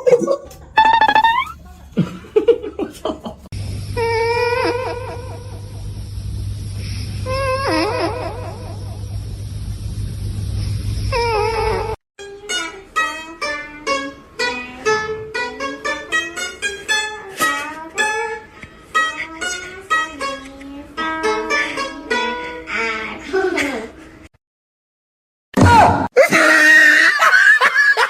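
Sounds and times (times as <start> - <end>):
steady low hum: 1.6 - 11.9
plucked strings music: 12.2 - 23.1.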